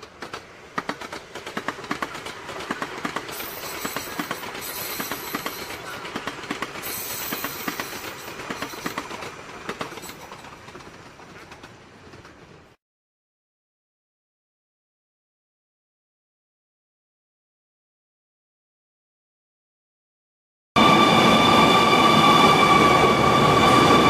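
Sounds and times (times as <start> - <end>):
train rushing noise: 0.0 - 12.8, 20.8 - 24.0
train wheels clicking on rails: 0.0 - 12.8.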